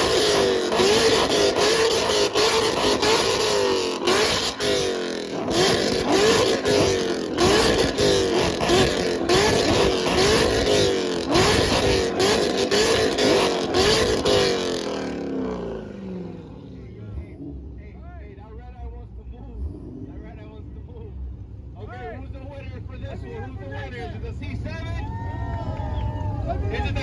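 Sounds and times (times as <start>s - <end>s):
engine revving in throttle blips: 0.0s - 17.9s, 19.3s - 20.6s.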